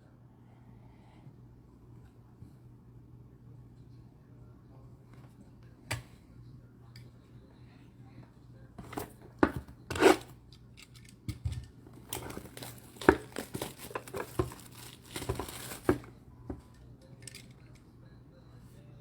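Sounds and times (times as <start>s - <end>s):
faint steady hum: 0.0s - 19.0s
packaging crinkling and tearing: 12.0s - 16.1s.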